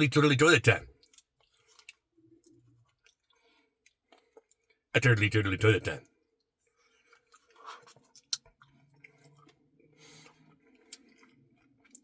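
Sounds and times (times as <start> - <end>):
quiet chewing: 0.9 - 4.9, 6.0 - 12.0
soft mouth clicks: 7.6 - 8.5.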